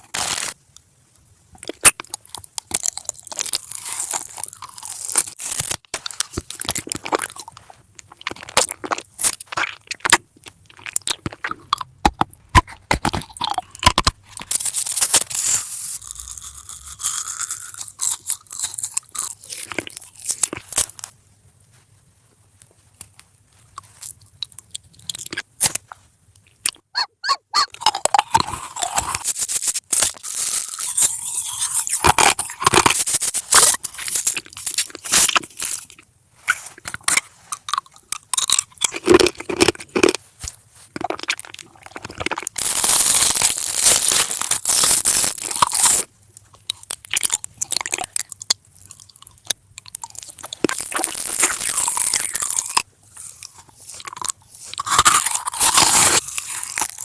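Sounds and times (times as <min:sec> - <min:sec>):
person chewing crunchy food: 0:00.0 - 0:00.6, 0:01.6 - 0:57.0.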